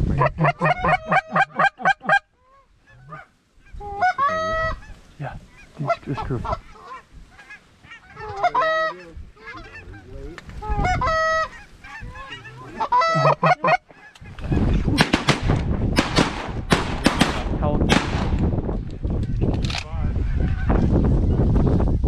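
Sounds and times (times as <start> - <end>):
goose honks: 5.5 - 14.8.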